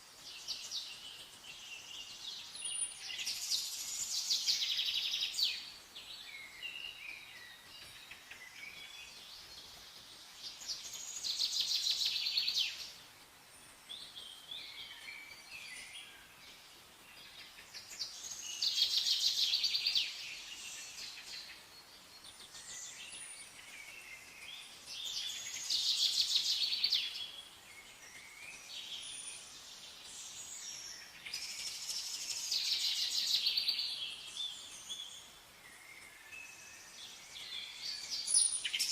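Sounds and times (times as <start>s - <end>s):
soft bird chirps: 0.0s - 38.9s
bird trilled song: 30.1s - 38.9s.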